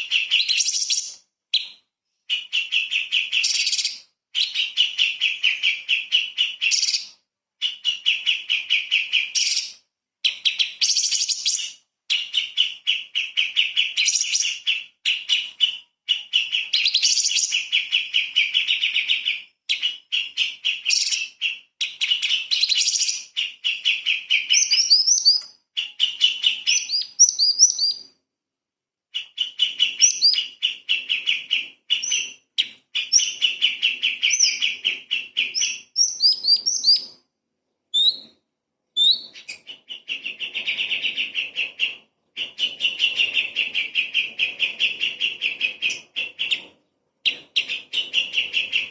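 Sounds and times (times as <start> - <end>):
bird singing rattling trill: 10.3 - 28.1, 29.2 - 37.2.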